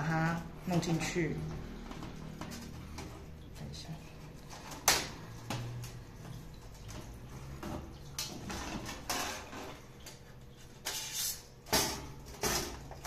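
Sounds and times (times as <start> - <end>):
metal panels scraping and clinking: 8.4 - 9.9.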